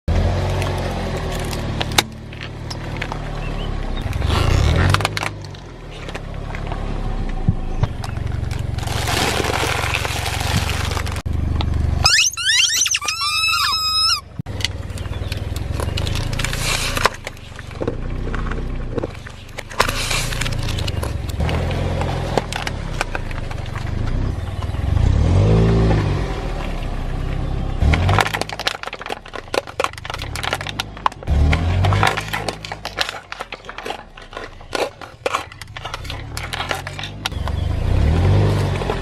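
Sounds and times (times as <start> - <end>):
car engine running: 0.1 - 13.6, 14.2 - 39.0
tyres crushing objects: 4.0 - 6.8, 7.8 - 11.3, 14.4 - 24.8, 27.8 - 39.0
wavering high squeak: 12.0 - 14.4.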